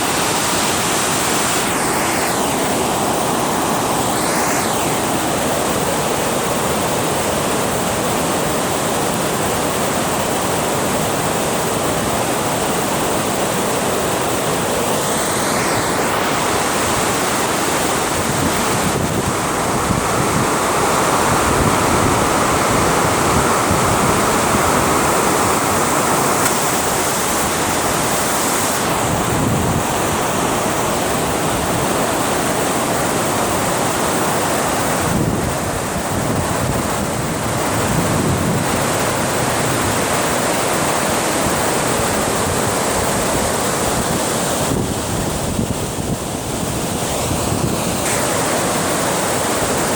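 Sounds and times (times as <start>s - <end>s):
water rushing through a dam: 0.0s - 49.9s
wind buffeting microphone: 15.2s - 32.0s, 34.9s - 40.2s, 41.4s - 48.6s.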